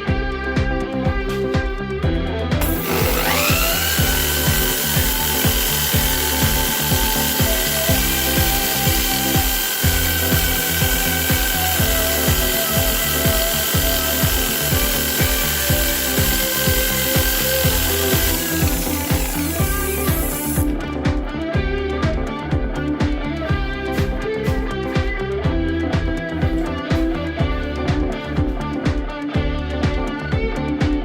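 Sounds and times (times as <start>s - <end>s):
background music with steady beat: 0.0s - 31.0s
electric motor whining: 2.6s - 20.7s.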